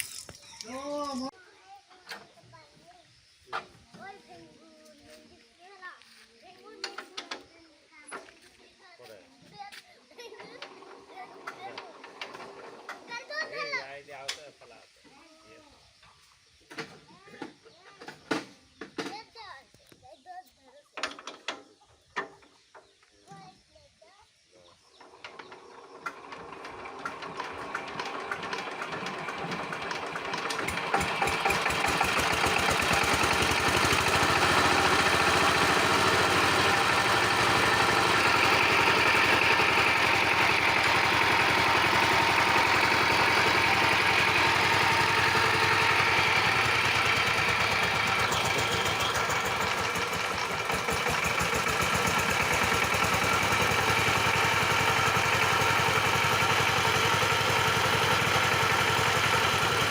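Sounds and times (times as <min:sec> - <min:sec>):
power tiller engine knocking: 0:10.4 - 0:13.1, 0:25.0 - 0:59.9.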